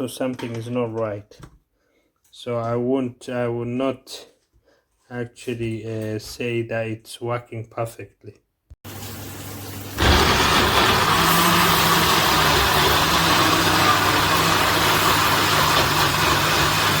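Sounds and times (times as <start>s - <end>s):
blender motor running loudly: 10.0s - 17.0s.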